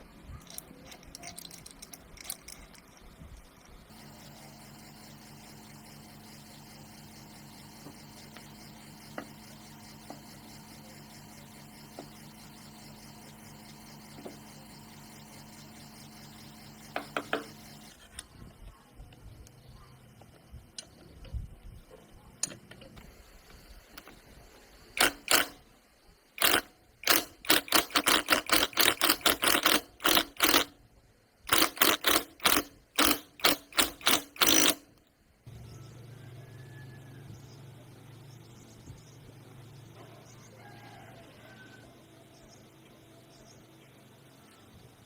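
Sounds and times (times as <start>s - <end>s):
hand tool sharp strokes: 25.0s - 25.6s, 26.4s - 30.7s, 31.5s - 34.8s.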